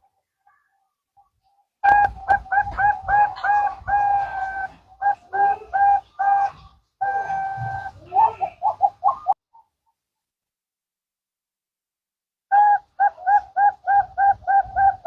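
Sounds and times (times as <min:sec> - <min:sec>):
dove cooing: 0:01.8 - 0:09.7, 0:12.5 - 0:15.0.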